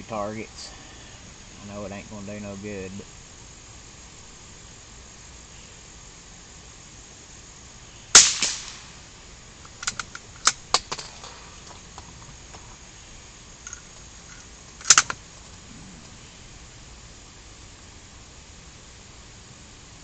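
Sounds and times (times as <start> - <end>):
rifle shots: 8.1 - 9.0
small metallic clicks and clacks: 9.7 - 11.1.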